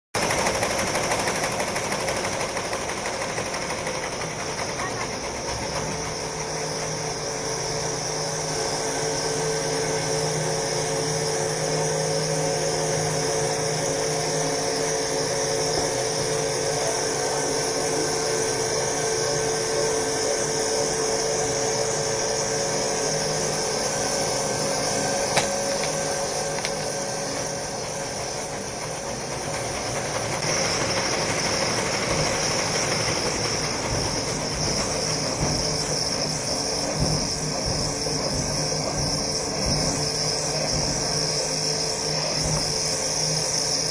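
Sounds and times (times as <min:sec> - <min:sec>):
machine humming and hissing: 0:00.2 - 0:43.9.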